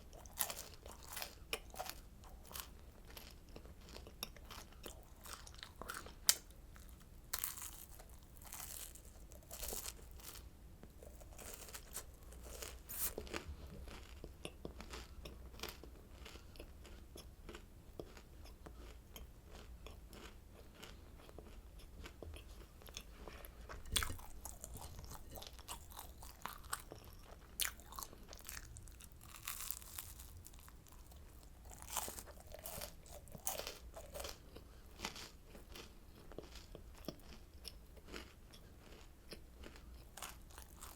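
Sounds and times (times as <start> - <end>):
chewing crunchy snack: 0.0 - 40.9.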